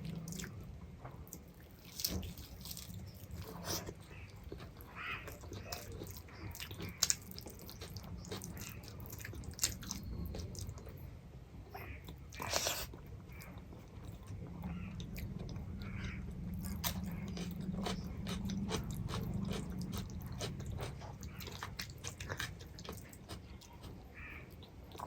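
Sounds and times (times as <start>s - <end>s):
person chewing food: 1.2s - 11.0s, 12.0s - 25.0s
food crunch: 16.4s - 24.0s.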